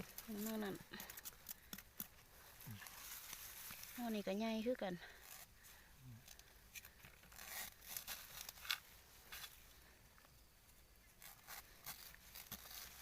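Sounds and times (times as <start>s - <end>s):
rustling of leaf litter: 0.0s - 10.0s, 11.2s - 13.0s.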